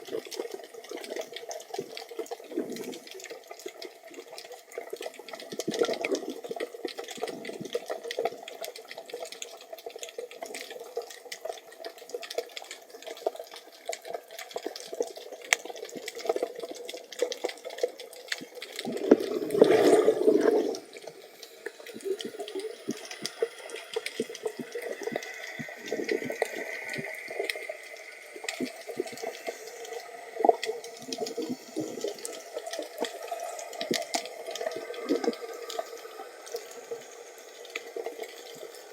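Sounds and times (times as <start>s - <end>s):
underwater crackle of small clicks: 0.0s - 38.9s
watery rush: 18.8s - 38.9s.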